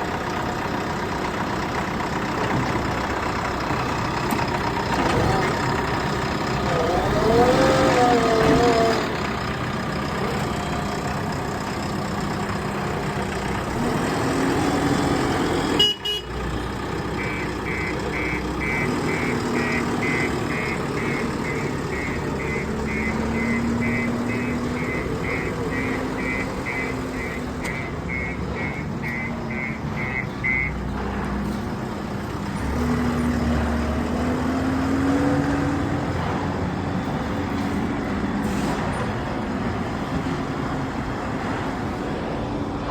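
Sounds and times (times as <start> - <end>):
diesel engine running: 0.0 - 42.9
reversing alarm beeping: 17.1 - 31.0.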